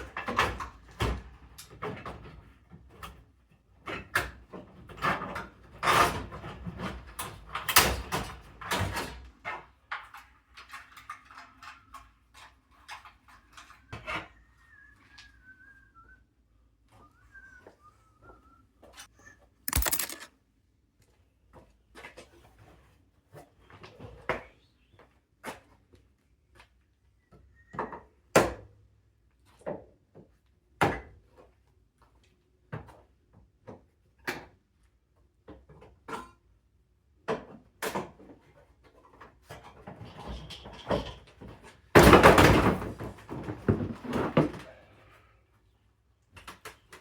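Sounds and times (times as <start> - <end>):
tools and parts knocking and clanking: 19.7 - 20.3.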